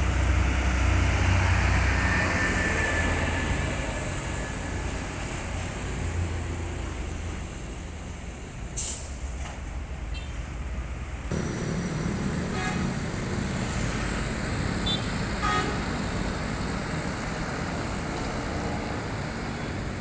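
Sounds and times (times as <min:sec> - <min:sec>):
road traffic engines: 0:00.0 - 0:20.0
horn toots: 0:11.3 - 0:13.8, 0:14.8 - 0:16.0.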